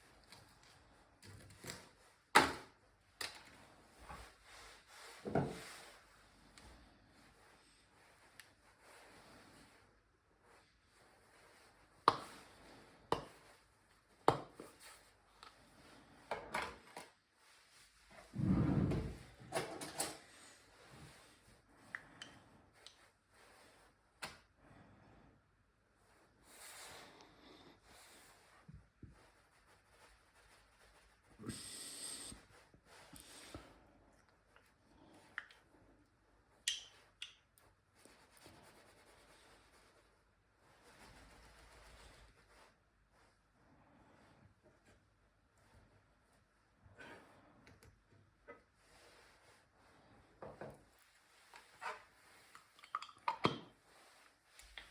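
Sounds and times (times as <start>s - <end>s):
low scraping rumble: 18.4s - 19.3s.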